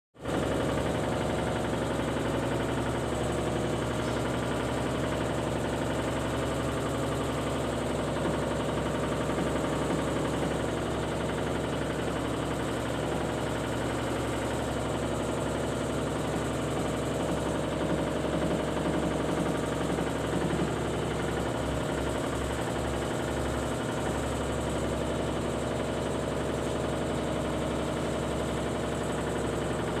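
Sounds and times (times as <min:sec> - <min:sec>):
mechanical hum: 0:00.2 - 0:25.4.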